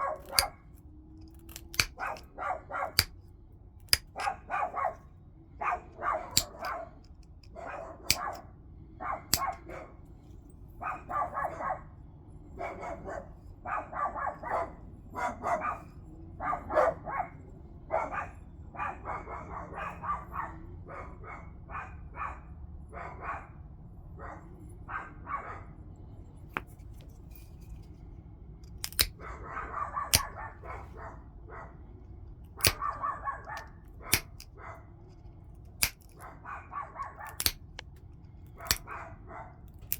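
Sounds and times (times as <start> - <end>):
sharp clicks of stone strikes: 0.2 - 0.5, 1.3 - 2.3, 3.9 - 4.4, 6.3 - 7.2, 8.1 - 8.4, 9.3 - 9.6, 28.7 - 29.2, 30.1 - 30.4, 32.6 - 34.5, 35.8 - 36.3, 37.2 - 38.0, 38.6 - 38.8
tool rasping on stone: 1.5 - 2.2, 3.9 - 4.4, 6.4 - 6.7, 28.8 - 29.2, 32.6 - 32.9, 34.1 - 34.4, 37.3 - 37.8, 38.6 - 38.8.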